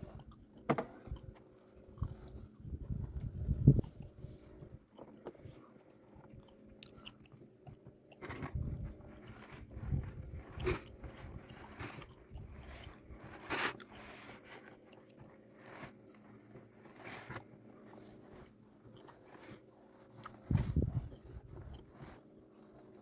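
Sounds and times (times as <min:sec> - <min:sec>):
shovel scraping snow: 0:09.4 - 0:14.7.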